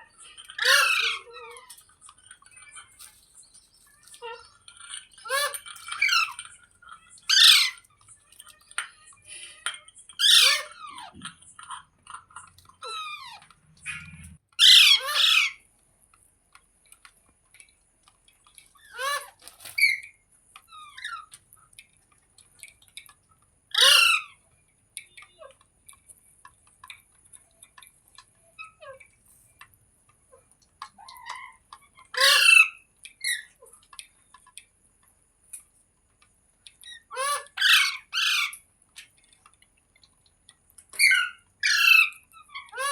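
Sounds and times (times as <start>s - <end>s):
parrot screeching: 0.0s - 1.8s, 5.1s - 6.5s, 7.1s - 7.9s, 10.2s - 11.2s, 12.8s - 15.6s, 18.8s - 20.1s, 23.7s - 24.4s, 31.0s - 33.6s, 36.9s - 38.6s, 40.9s - 42.9s
parrot chirps and chatter: 0.0s - 15.7s, 16.9s - 34.8s, 35.5s - 42.9s.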